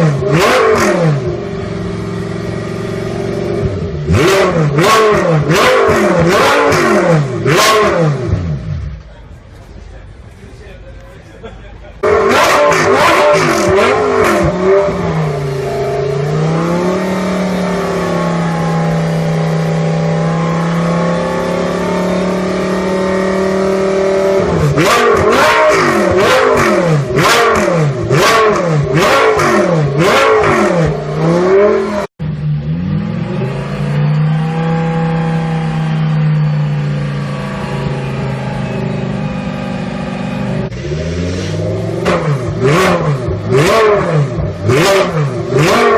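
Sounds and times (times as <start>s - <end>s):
racecar engine revving: 0.0s - 9.9s, 12.0s - 45.9s.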